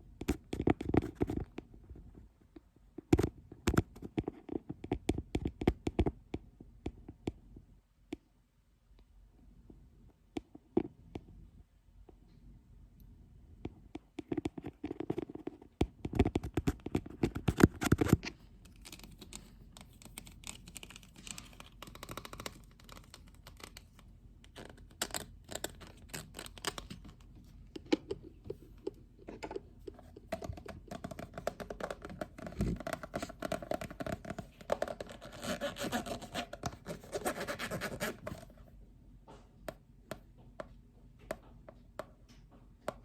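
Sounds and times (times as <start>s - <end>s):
fingers scratching on a lid: 29.9s - 38.6s.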